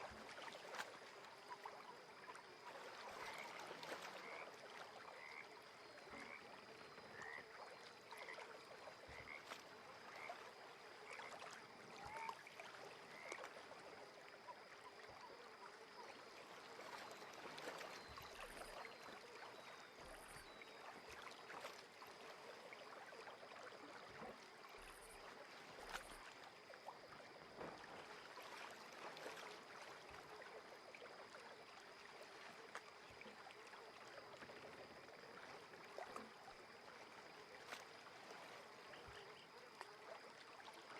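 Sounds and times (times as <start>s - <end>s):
frogs calling: 3.1s - 13.5s.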